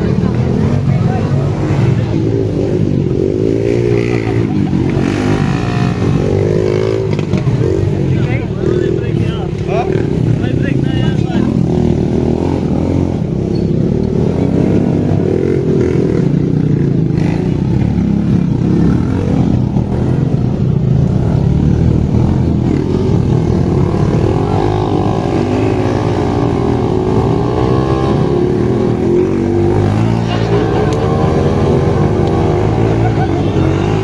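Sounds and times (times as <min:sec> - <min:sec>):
dirt bike engines revving: 0:00.0 - 0:34.0.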